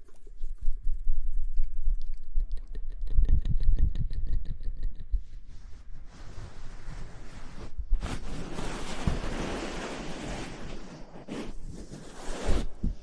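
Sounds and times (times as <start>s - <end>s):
close-miked rustling: 5.3s - 13.0s.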